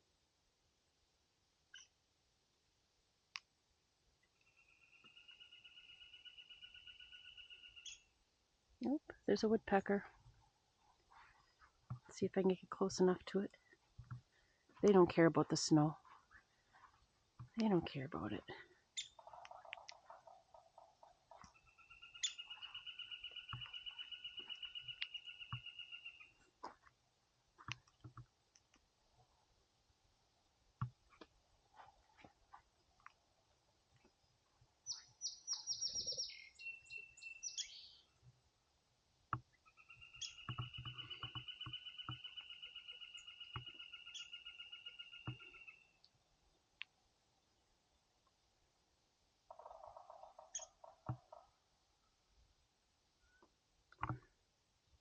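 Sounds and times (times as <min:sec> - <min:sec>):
songbirds singing: 0:04.4 - 0:08.2, 0:09.4 - 0:26.5, 0:34.0 - 0:38.2, 0:39.4 - 0:46.9, 0:49.5 - 0:51.5.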